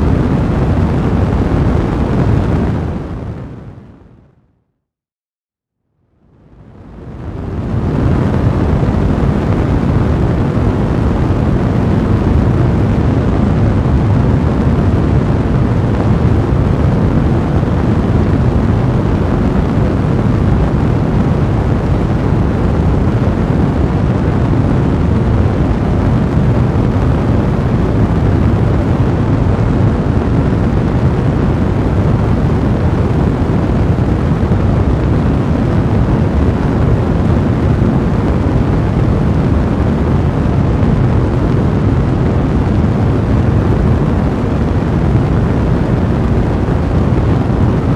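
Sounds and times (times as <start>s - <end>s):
fireplace flames rushing: 6.7s - 47.9s.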